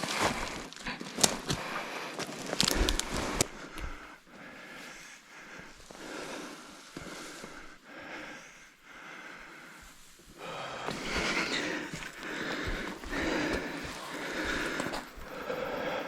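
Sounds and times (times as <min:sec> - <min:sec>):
person breathing hard: 0:00.0 - 0:16.0
soft footsteps: 0:09.4 - 0:16.0.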